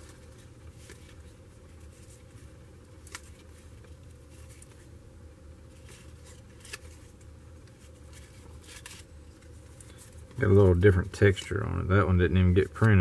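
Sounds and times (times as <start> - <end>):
trading cards rustling: 0.0 - 5.0, 5.6 - 11.8
cards snapping: 3.0 - 3.5, 5.8 - 7.0, 7.6 - 10.0.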